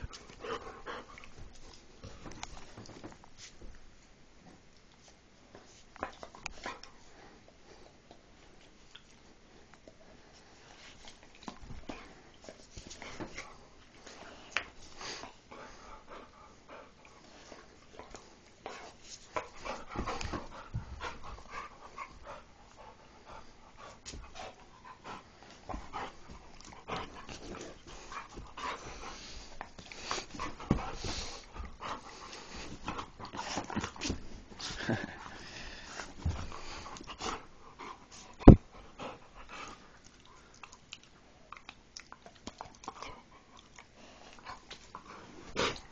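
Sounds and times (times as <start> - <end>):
dog panting: 0.0 - 2.9, 12.9 - 40.6.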